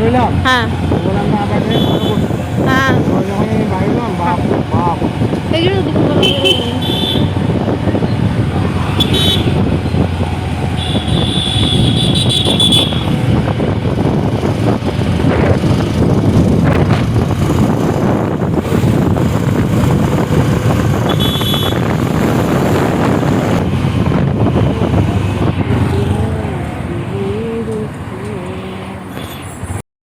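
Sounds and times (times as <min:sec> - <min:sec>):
motorcycle engine rumble: 0:00.0 - 0:29.5
wind rushing over microphone: 0:00.0 - 0:29.8
vehicle horn beeps: 0:06.2 - 0:07.3, 0:09.0 - 0:09.6, 0:10.8 - 0:13.1, 0:21.1 - 0:21.9.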